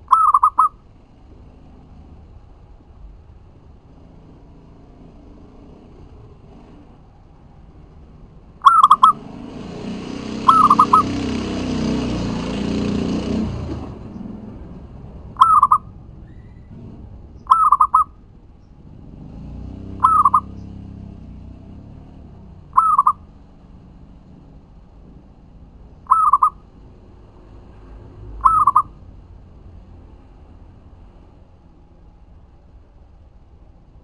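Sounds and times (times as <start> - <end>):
dove cooing: 0.1 - 0.8, 8.6 - 9.4, 10.2 - 11.8, 15.4 - 15.9, 17.5 - 18.1, 20.0 - 20.5, 22.7 - 23.3, 26.1 - 26.6, 28.4 - 29.0
broad rushing noise: 8.9 - 14.1.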